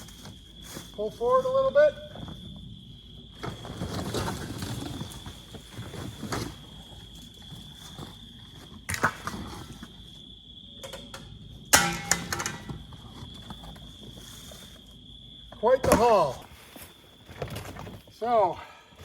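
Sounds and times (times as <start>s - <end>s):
knocks and rattles: 10.8s - 13.1s.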